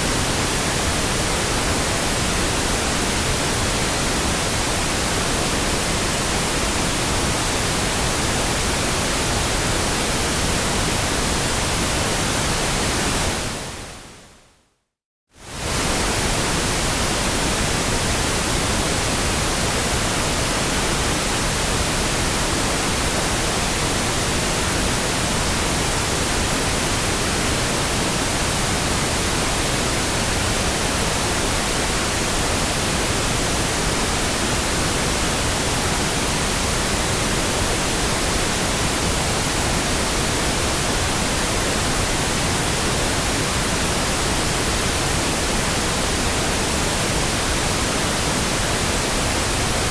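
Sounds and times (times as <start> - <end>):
pink noise hiss: 15.4 - 49.9.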